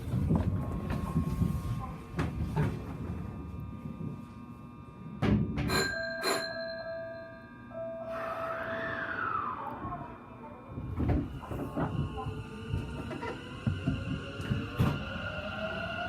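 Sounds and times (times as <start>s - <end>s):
train signal bell ringing: 5.7s - 8.2s.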